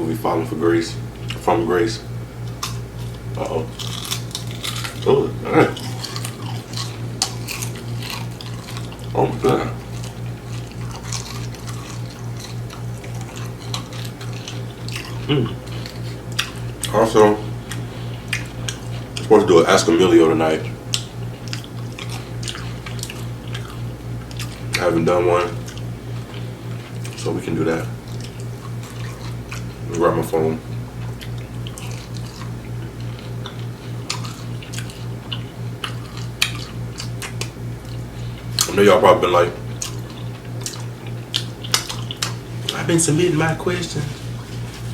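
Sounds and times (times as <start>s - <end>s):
low pulsing hum: 0.0s - 44.9s
chewing crunchy food: 0.9s - 44.9s
person humming: 15.2s - 15.7s
wet mouth smacking clicks: 20.9s - 23.3s, 39.8s - 42.4s.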